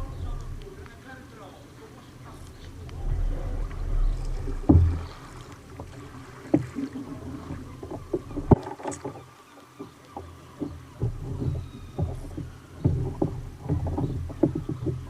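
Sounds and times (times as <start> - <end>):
low rumble: 0.0 - 1.1, 2.3 - 6.4
water slapping against hull: 0.0 - 15.0
sharp knocks: 4.2 - 5.4.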